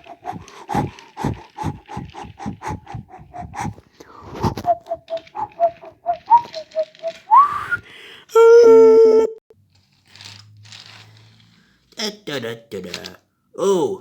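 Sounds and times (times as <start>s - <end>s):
short rising whistle: 0.2s - 7.8s.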